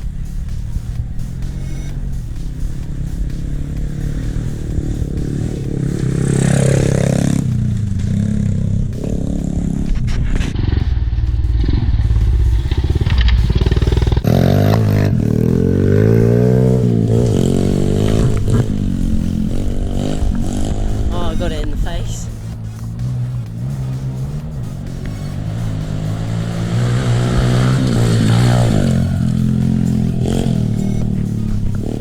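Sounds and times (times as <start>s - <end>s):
pit bike engine revving: 0.0s - 32.0s.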